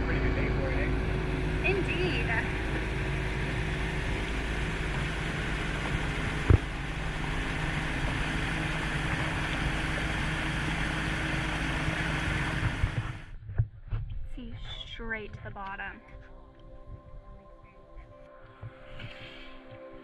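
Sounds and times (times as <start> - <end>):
outboard engine hum: 0.0 - 13.7
wind and water rushing: 2.4 - 13.3.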